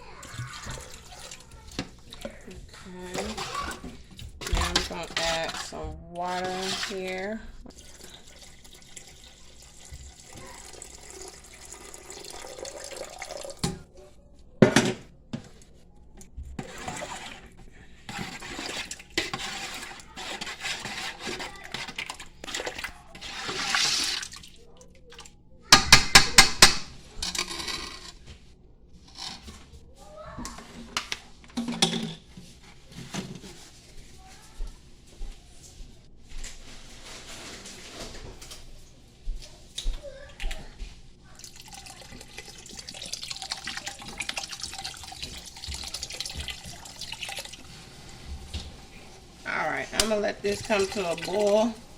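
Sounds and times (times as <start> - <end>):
tap water running into pot: 0.2 - 13.9, 16.6 - 25.2, 41.3 - 47.9, 49.7 - 51.8
kitchen handling knocks: 25.7 - 27.0.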